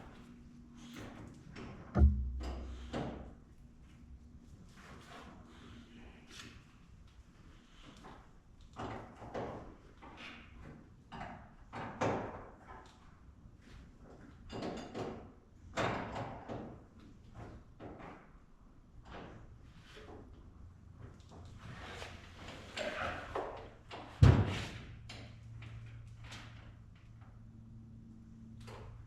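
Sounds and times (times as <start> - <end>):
heavy thump: 2.0 - 3.1
low steady hum: 2.0 - 3.4.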